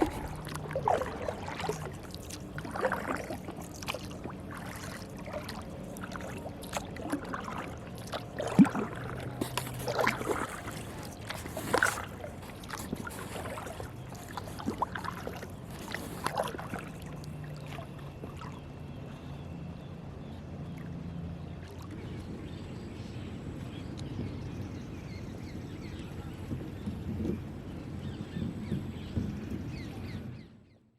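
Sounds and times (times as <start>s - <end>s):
kayak paddle splashing: 0.0s - 19.5s
faint low hum: 0.0s - 30.4s
water sloshing against boat: 0.0s - 30.8s.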